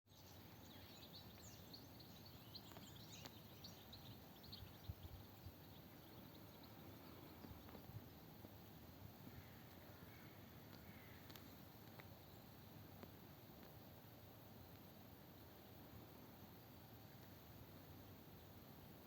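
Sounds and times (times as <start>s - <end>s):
faint bird chirps: 0.1s - 8.3s.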